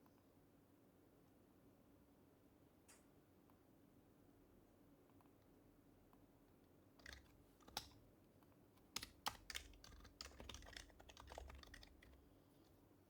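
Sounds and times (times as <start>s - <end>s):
keyboard typing: 7.0s - 8.0s, 8.9s - 12.3s.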